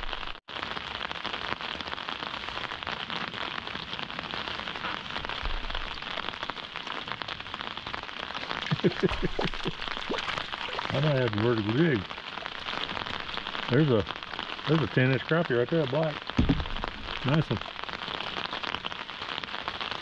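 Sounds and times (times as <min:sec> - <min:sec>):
rain pattering: 0:00.0 - 0:20.0
dull thumps: 0:16.4 - 0:17.3.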